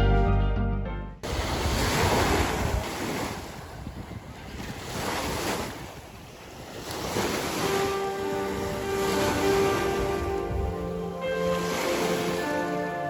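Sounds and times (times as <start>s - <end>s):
keyboard music: 0.0s - 1.2s, 7.5s - 13.0s
wind buffeting microphone: 1.2s - 11.2s
waves washing and lapping: 1.2s - 13.0s.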